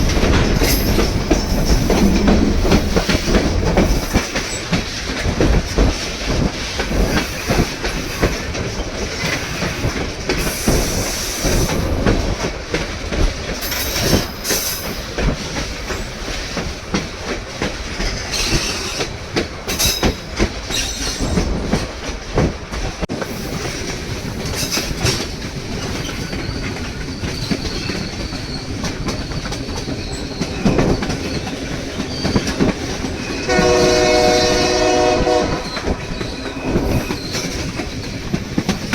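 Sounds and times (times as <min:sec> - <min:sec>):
train rumbling on rails: 0:00.0 - 0:38.9
locomotive horn chord: 0:33.5 - 0:35.8.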